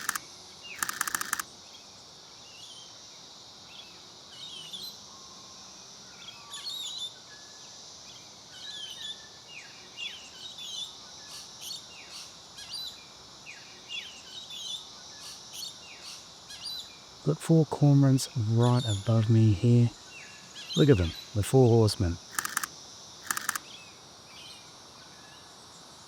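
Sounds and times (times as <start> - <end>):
insects droning: 0.0 - 26.0
birds chirping: 20.7 - 23.6.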